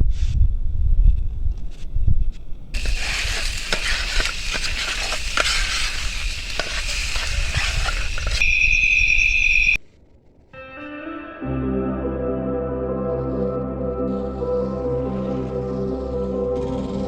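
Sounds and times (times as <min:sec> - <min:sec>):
food sizzling in a pan: 0:02.8 - 0:08.5
shrill whistle-like tone: 0:08.4 - 0:09.8.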